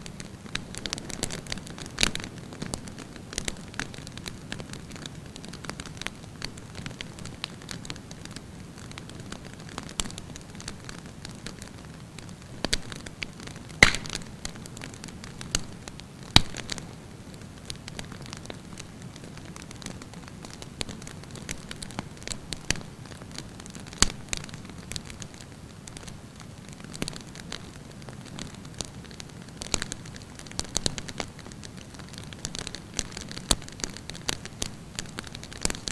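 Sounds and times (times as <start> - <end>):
campfire burning with crackles: 0.0 - 35.9
loud fire pops: 12.7 - 16.9.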